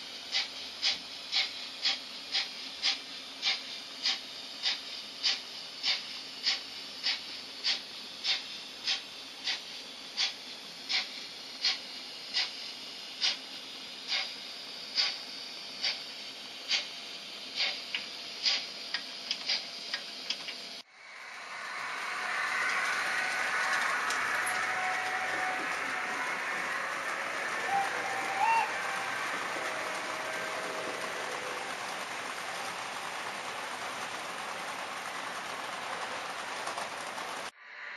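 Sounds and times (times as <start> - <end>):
model train rolling rattle: 0.0 - 13.4, 21.6 - 37.5.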